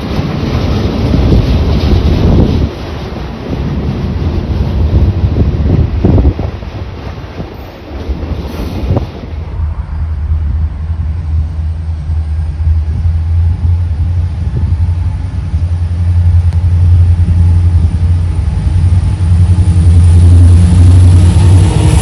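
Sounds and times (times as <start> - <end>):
diesel locomotive engine rumbling: 0.0 - 22.0.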